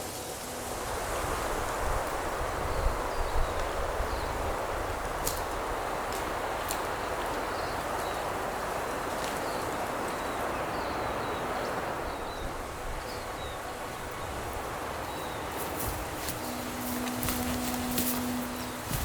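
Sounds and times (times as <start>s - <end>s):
wind rushing through pine trees: 0.0s - 19.0s
small birds chirping: 6.7s - 19.0s.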